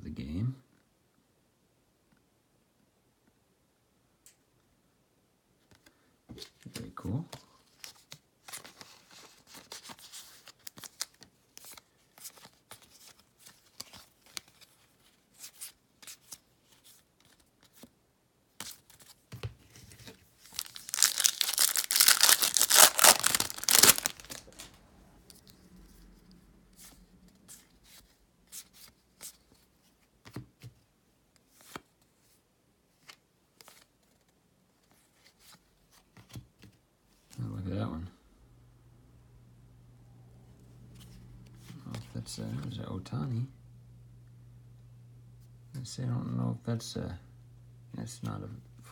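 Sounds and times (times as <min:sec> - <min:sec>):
card pack wrapper tearing: 0:20.5 - 0:24.8.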